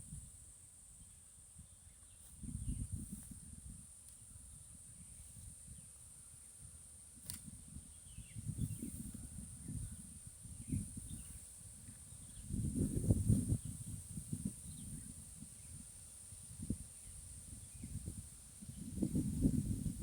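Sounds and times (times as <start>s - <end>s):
sharp click: 7.2s - 7.5s
faint bird chirps: 7.7s - 12.6s.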